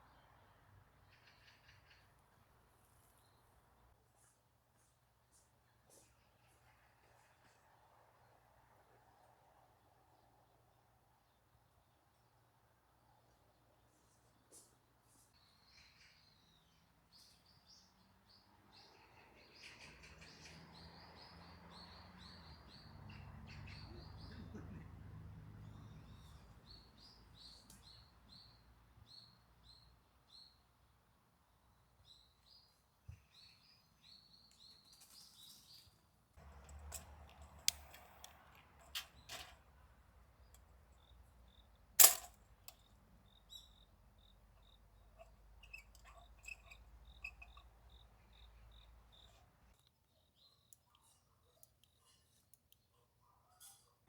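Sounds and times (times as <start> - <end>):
sharp clicks and knocks: 36.4 - 39.7.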